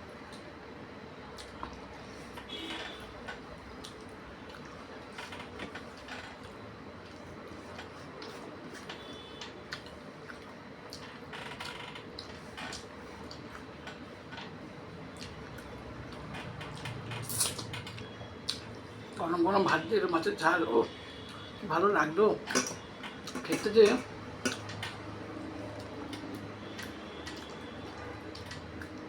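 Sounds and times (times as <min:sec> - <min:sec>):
faint steady hum: 0:00.0 - 0:29.0
chewing smacks: 0:09.7 - 0:11.0, 0:25.7 - 0:29.0.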